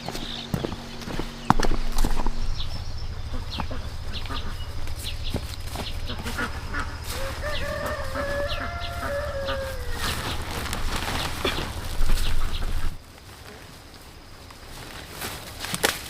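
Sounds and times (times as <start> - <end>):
steady low hum: 0.0 - 14.9
rooster crowing: 2.6 - 11.9.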